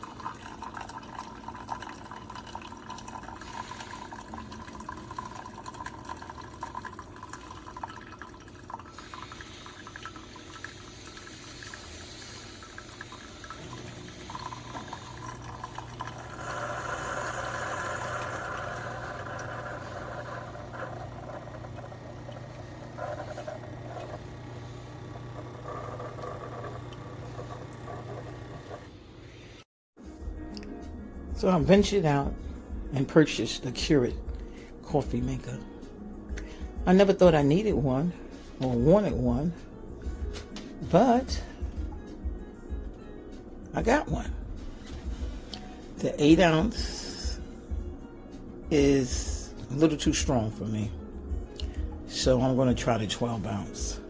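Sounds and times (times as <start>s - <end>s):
liquid trickling into cup: 0.0s - 28.9s
low pump hum: 0.0s - 28.9s, 33.8s - 54.0s.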